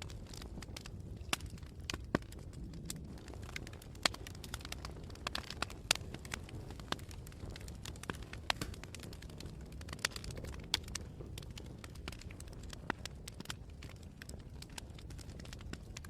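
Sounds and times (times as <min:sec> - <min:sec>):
campfire crackling and popping: 0:00.0 - 0:16.0
low fire rumble: 0:00.0 - 0:16.0.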